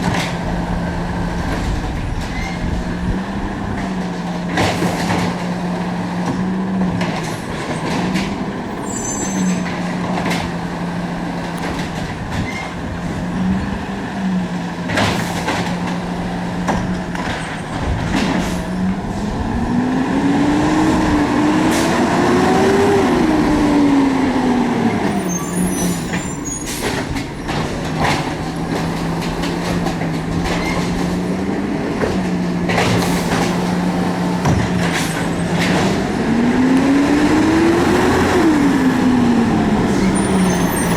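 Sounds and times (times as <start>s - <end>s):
garbage truck engine running: 0.0s - 40.9s.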